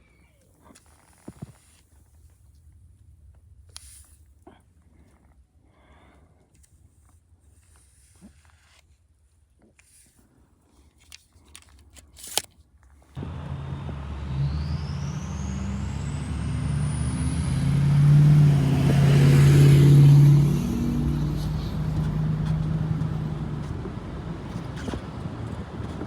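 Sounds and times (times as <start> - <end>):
faint rising whistle: 13.2 - 22.3
vehicle engine humming: 13.2 - 26.0.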